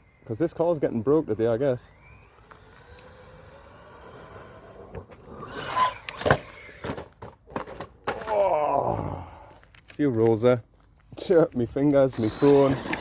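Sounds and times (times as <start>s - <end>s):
electric motor whining: 0.9s - 6.9s, 12.1s - 13.0s
toy car crashing and tumbling: 2.0s - 8.5s, 12.2s - 13.0s.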